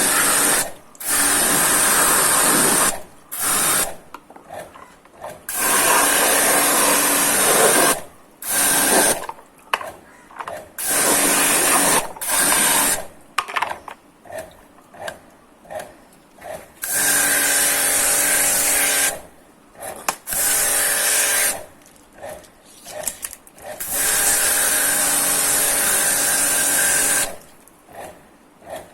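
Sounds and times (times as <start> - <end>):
pressure washer spraying water: 0.0 - 4.0, 5.5 - 9.3, 10.8 - 13.1, 16.8 - 19.2, 20.3 - 21.7, 23.8 - 27.5.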